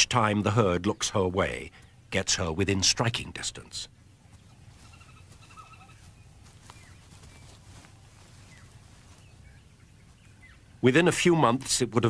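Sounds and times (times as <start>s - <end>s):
low steady background hum: 0.0s - 12.0s
bird calls: 3.6s - 11.6s.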